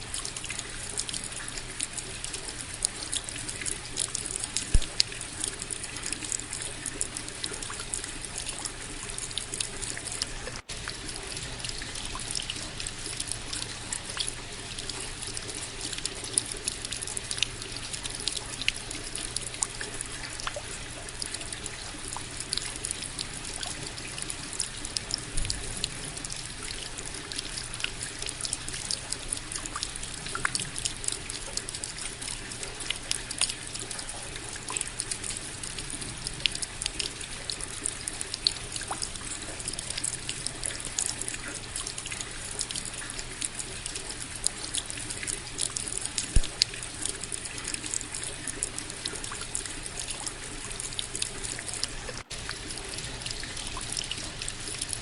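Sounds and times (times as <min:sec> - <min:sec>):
steady rain: 0:00.0 - 0:55.0
water trickling: 0:00.0 - 0:55.0
raindrops striking sharply: 0:04.6 - 0:05.1.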